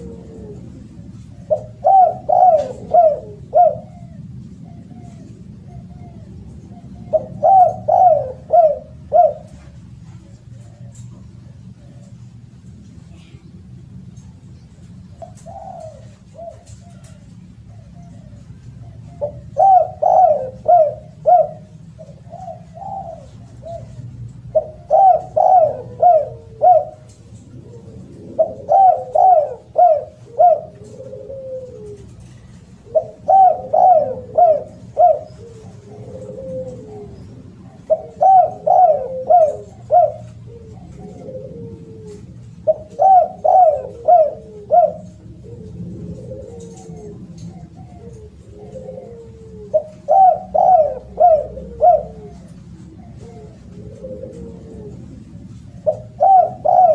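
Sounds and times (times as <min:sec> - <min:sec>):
dove cooing: 0:00.0 - 0:56.9.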